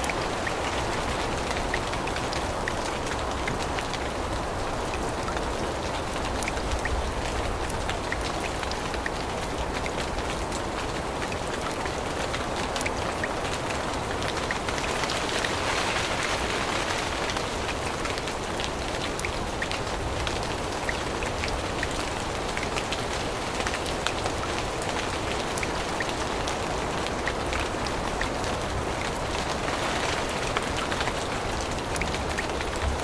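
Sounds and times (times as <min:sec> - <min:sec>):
raindrops ticking close by: 0:00.0 - 0:33.0
steady rain falling: 0:00.0 - 0:33.0.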